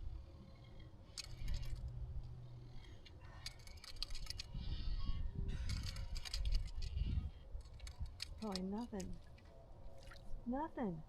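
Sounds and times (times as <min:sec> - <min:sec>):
fishing tackle clicking and rattling: 0:01.0 - 0:02.0, 0:03.0 - 0:04.5.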